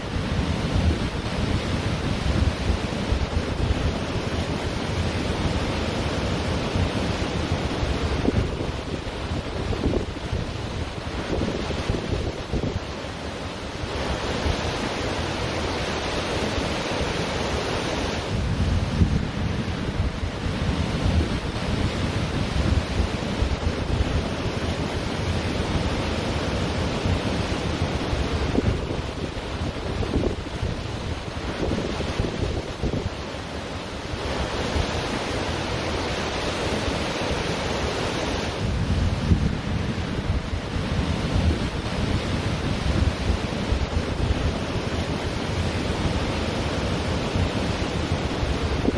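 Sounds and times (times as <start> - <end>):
wind buffeting microphone: 0.0 - 13.0, 18.2 - 33.2, 38.3 - 48.9
ocean surf on beach: 0.0 - 48.9.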